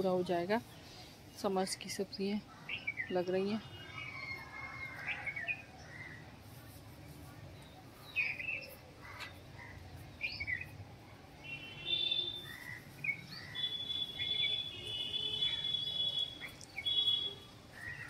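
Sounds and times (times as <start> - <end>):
birds chirping: 0.0 - 6.2, 7.5 - 18.0
high whistled bird notes: 11.4 - 18.0.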